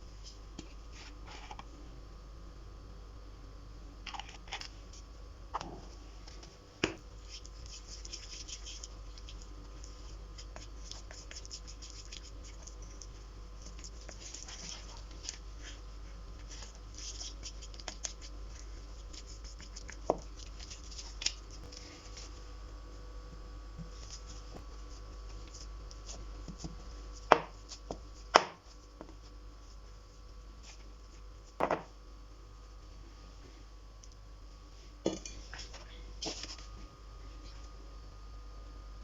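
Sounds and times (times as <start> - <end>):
steady low hum: 0.0 - 39.0
soft scratching and crackling: 0.1 - 1.8, 4.0 - 31.6.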